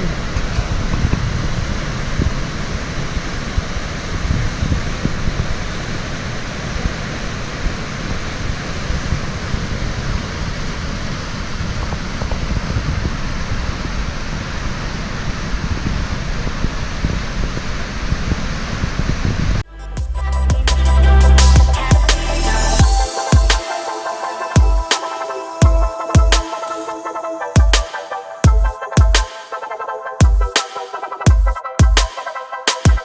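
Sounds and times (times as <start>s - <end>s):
waterfall and river rushing: 22.9s - 30.1s.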